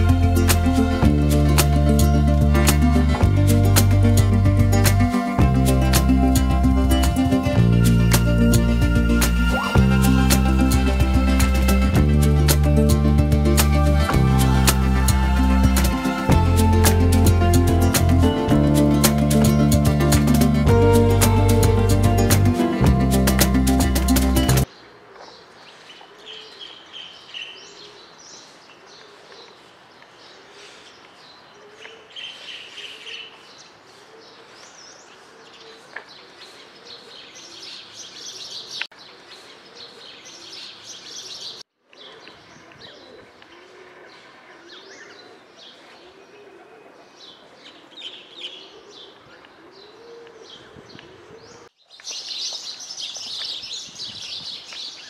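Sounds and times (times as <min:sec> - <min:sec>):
low arching repeating note: 0:00.0 - 0:24.6
small birds chirping: 0:24.4 - 0:55.0.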